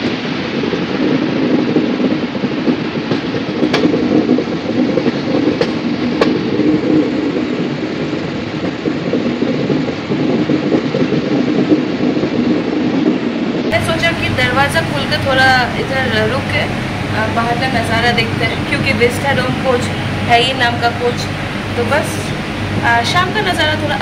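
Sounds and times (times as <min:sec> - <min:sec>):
train wheels rumbling and rattling: 0:13.1 - 0:24.0.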